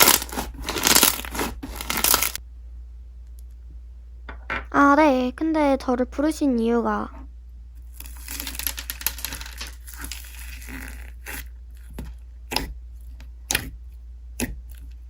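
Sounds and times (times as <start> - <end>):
slime crackling and popping: 0.0 - 2.4, 7.8 - 12.7.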